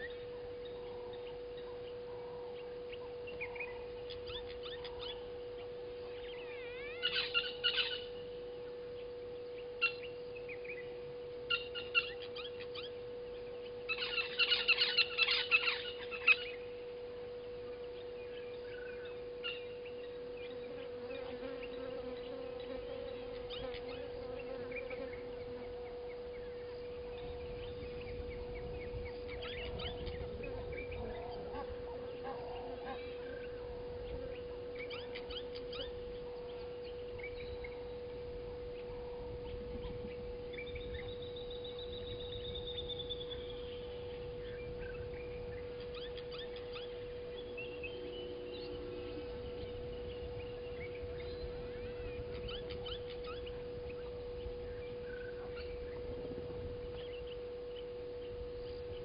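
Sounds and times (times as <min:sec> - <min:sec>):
birds chirping and calling: 0:00.0 - 0:08.2, 0:09.0 - 0:16.8, 0:17.6 - 0:59.0
steady hum: 0:00.0 - 0:59.0.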